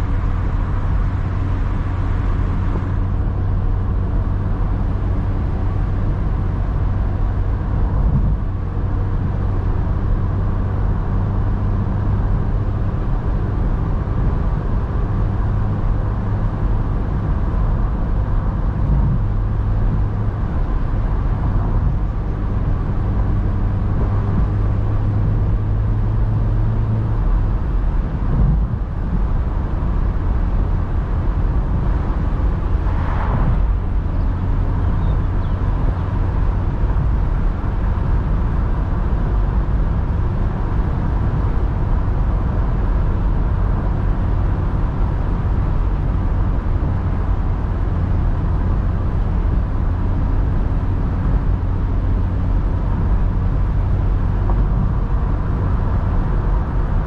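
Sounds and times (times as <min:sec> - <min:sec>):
car engine cruising: 0:00.0 - 0:57.0
tyre and wind noise: 0:00.0 - 0:57.0
brief whoosh: 0:32.6 - 0:34.4.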